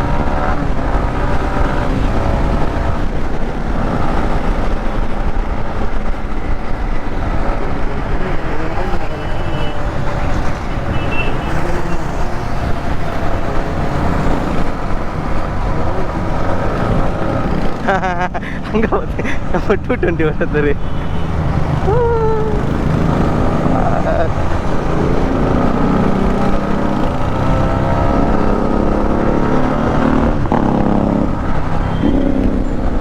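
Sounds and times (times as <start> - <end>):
motorcycle engines running: 0.0 - 33.0.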